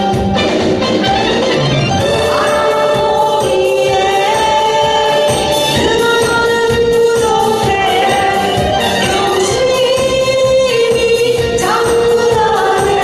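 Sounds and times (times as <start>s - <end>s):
backing track with steady beat: 0.0s - 13.0s
woman singing a pop song: 2.0s - 13.0s.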